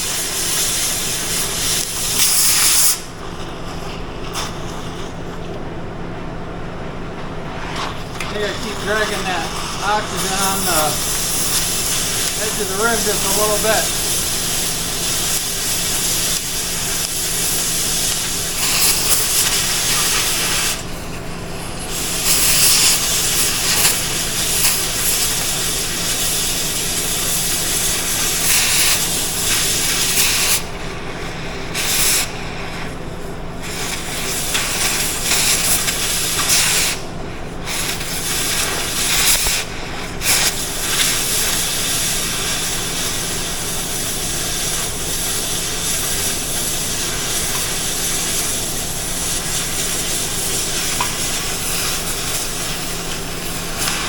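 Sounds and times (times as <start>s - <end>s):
cutting torch hissing: 0.0s - 5.6s, 7.3s - 54.0s.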